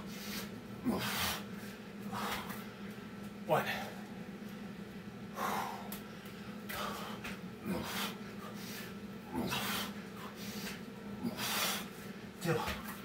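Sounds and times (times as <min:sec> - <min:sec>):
heavy laboured breathing: 0:00.0 - 0:02.8, 0:05.3 - 0:06.1, 0:06.7 - 0:12.9
steady low hum: 0:00.0 - 0:13.0
voiced grunts: 0:09.3 - 0:09.9.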